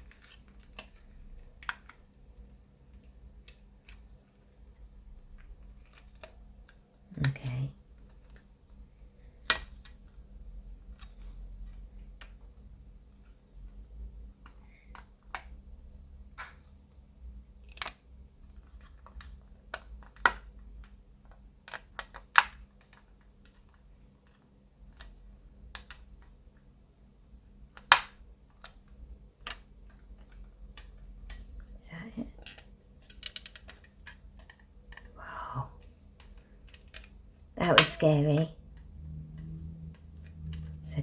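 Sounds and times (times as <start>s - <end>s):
plastic parts clicking together: 0.0s - 8.5s, 9.3s - 10.2s, 17.6s - 26.4s, 27.7s - 35.2s, 36.1s - 38.0s.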